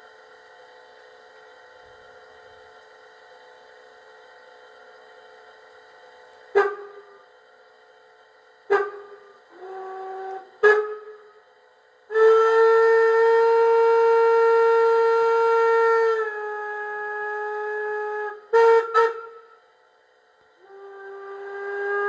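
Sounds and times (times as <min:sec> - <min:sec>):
steam whistle blast: 0:06.5 - 0:07.2, 0:08.7 - 0:11.4, 0:12.1 - 0:19.7, 0:20.6 - 0:22.0.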